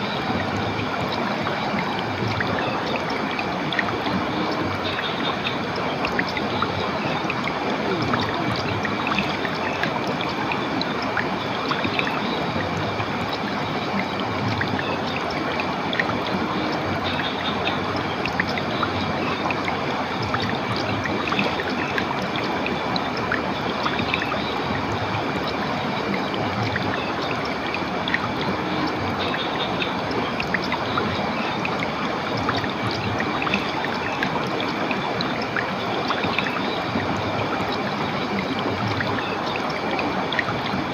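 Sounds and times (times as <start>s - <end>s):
stream water running: 0.0s - 40.9s.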